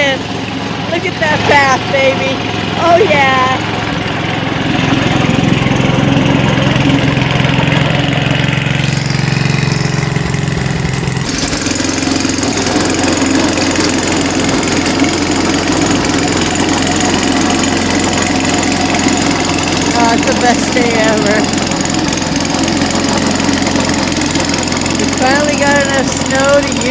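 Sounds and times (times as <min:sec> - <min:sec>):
snow blower engine running: 0:00.0 - 0:26.9.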